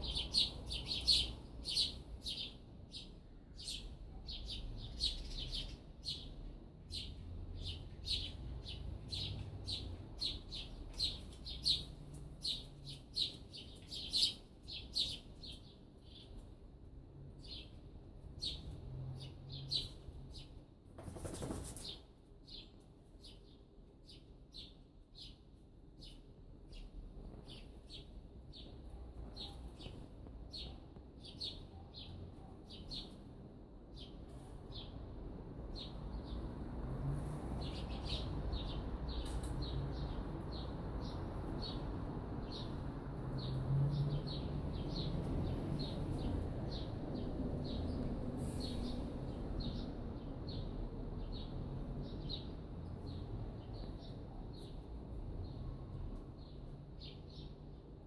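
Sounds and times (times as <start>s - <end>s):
small bird chirping: 0.0s - 16.6s, 17.4s - 35.0s.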